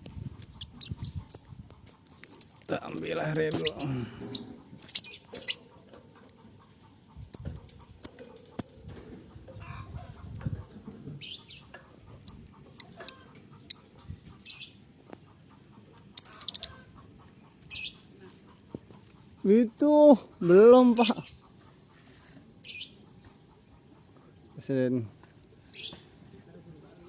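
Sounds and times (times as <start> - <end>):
bird shrill chirps: 2.9 - 5.6.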